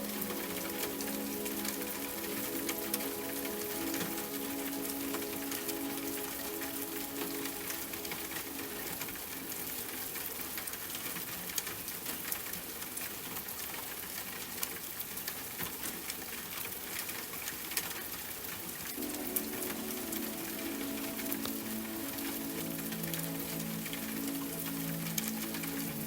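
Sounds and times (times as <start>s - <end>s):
soft sustained music tones: 0.0s - 10.6s, 19.0s - 26.0s
sharp ticks of raindrops: 0.0s - 26.0s
steady rain: 0.0s - 26.0s.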